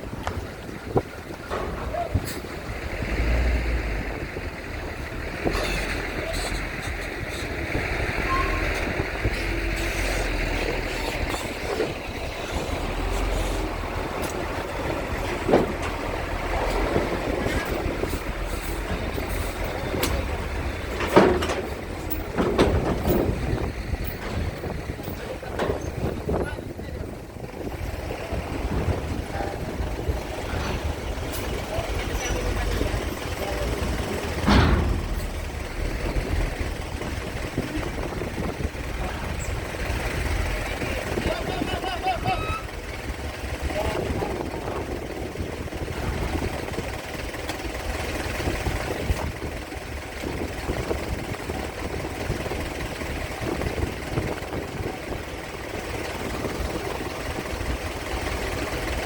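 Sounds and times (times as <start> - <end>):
low engine rumble: 0.0 - 59.0
wind buffeting microphone: 0.0 - 59.0
loud knocks: 21.0 - 24.5, 34.2 - 36.7.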